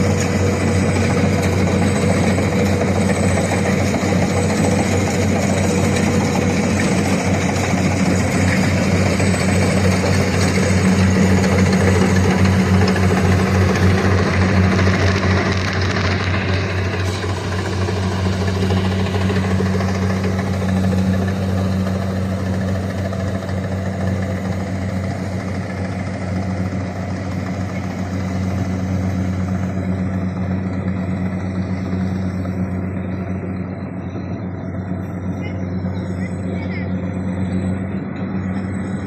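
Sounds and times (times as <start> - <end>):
combine harvester engine drone: 0.0 - 39.0.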